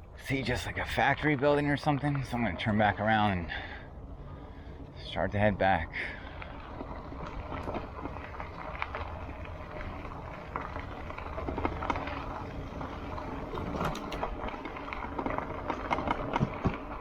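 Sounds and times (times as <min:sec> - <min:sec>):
footsteps crunching on a trail: 0:06.2 - 0:17.0.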